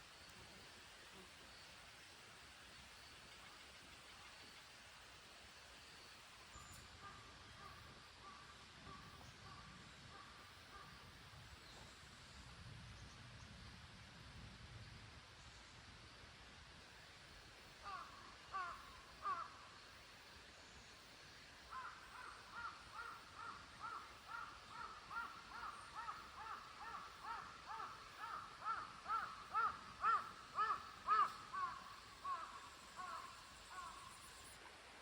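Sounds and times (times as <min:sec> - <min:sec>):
bird calling: 0:21.7 - 0:34.2.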